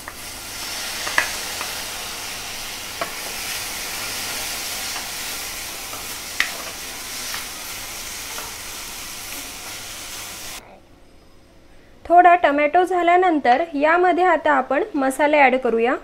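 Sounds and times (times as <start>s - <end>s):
vegetables sizzling in hot oil: 0.0s - 10.6s.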